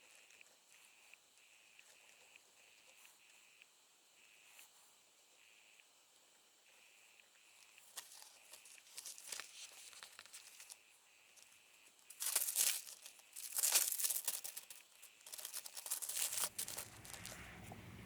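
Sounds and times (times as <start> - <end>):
paper crinkling and tearing: 8.0 - 10.8, 12.1 - 17.9.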